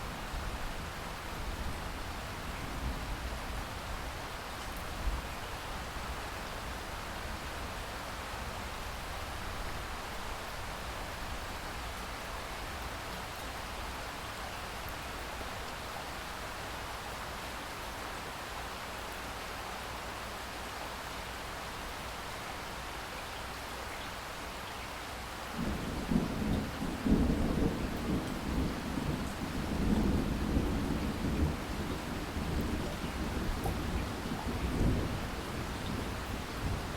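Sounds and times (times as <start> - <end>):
steady rain: 0.0 - 36.9
rolling thunder rumble: 25.6 - 36.9.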